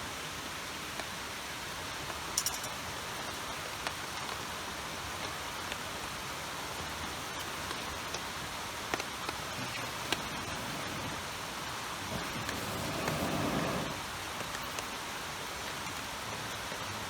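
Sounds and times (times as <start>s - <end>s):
running water hiss: 0.0s - 17.0s
sharp ticks: 2.4s - 2.8s.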